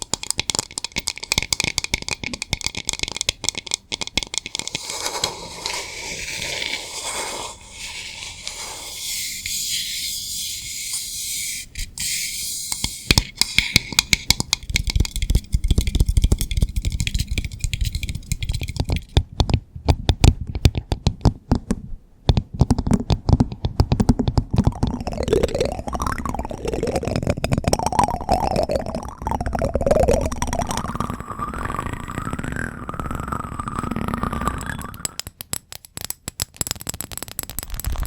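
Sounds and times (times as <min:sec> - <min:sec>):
rapid clicking and tapping: 0:00.0 - 0:05.8, 0:12.7 - 0:21.7, 0:22.3 - 0:31.1, 0:34.9 - 0:38.0.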